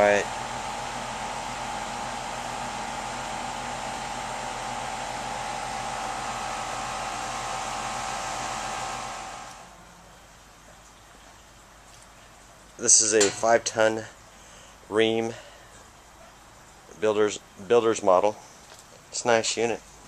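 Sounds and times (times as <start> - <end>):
condenser fan rushing air: 0.0 - 9.8.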